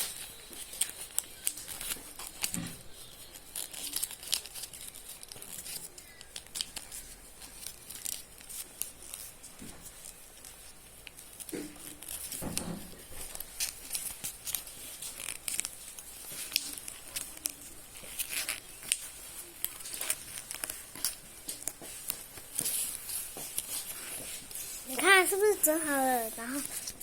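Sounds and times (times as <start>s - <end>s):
paper being folded and creased: 0.0s - 27.0s.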